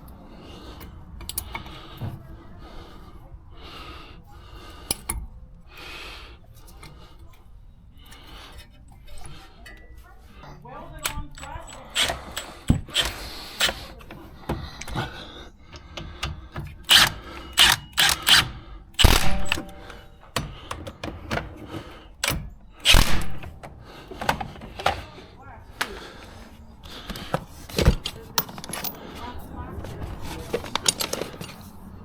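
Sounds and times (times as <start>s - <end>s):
metal tools clanking: 8.0s - 25.2s, 26.9s - 32.0s.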